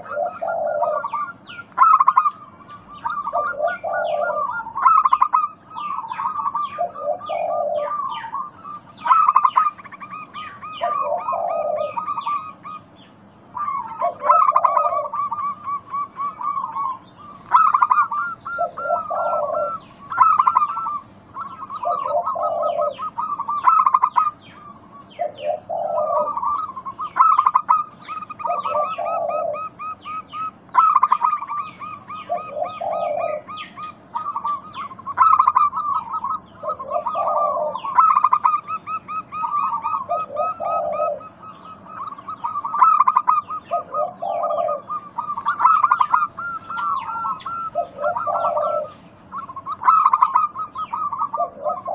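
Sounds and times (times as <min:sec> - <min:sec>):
low dove coo: 0:00.0 - 0:12.8, 0:13.6 - 0:51.9
doves cooing: 0:00.0 - 0:51.9.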